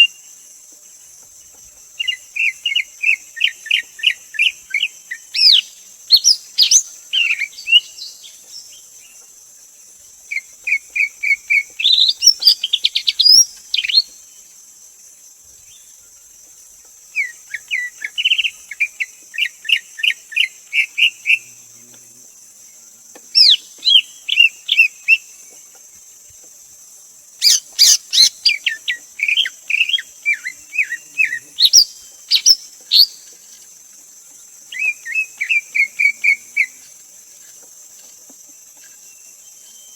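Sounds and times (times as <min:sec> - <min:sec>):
steady high hiss: 0:00.0 - 0:39.9
bird singing whistled chattering notes: 0:02.0 - 0:08.2, 0:10.4 - 0:14.2, 0:23.4 - 0:25.3, 0:27.4 - 0:33.3.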